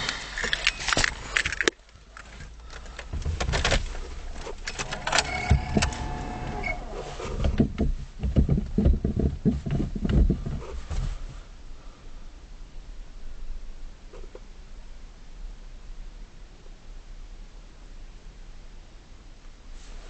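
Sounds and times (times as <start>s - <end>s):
starter motor cranking diesel engine: 0.0s - 7.8s
short whine: 4.7s - 7.5s.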